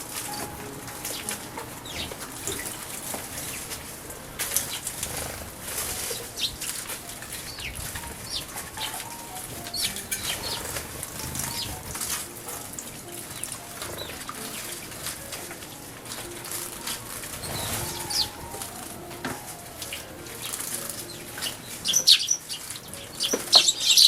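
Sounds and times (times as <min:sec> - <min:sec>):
bird wings fluttering: 0:02.2 - 0:09.0
bird chirps: 0:06.0 - 0:12.1, 0:19.7 - 0:24.0.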